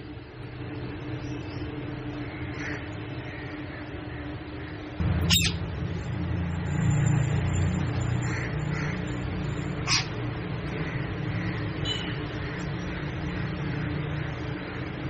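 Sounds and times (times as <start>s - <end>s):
steady low rumble: 5.0s - 11.6s
parrot screeching: 5.2s - 5.6s, 9.8s - 10.2s.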